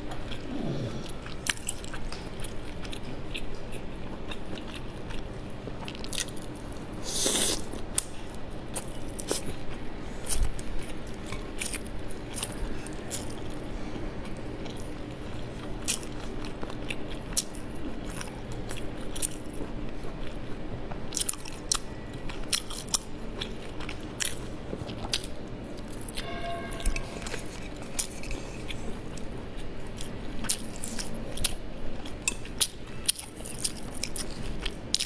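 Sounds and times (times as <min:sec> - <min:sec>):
chewing sticky rice: 0:00.0 - 0:26.2, 0:27.2 - 0:35.0.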